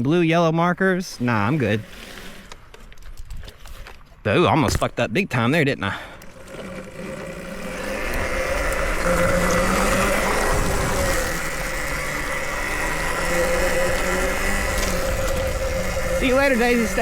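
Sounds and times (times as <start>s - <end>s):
wind: 0.0s - 17.0s
electric motor whine: 6.2s - 17.0s.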